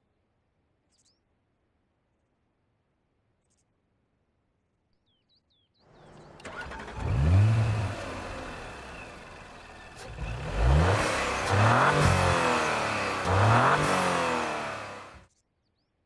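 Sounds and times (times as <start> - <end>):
car engine revving: 6.0 - 15.2.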